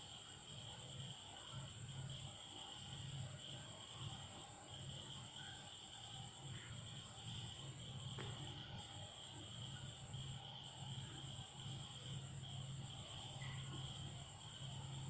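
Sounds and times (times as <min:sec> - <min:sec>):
insects chirring: 0:00.0 - 0:15.0
low uneven hum: 0:05.2 - 0:15.0.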